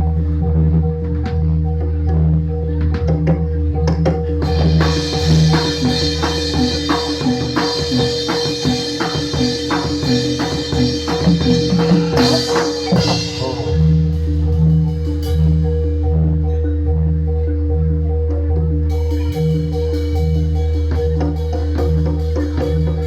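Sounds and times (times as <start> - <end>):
gamelan music over sound system: 0.0 - 23.0
metallophones ringing: 0.0 - 23.0
driving drum beat: 2.8 - 16.2.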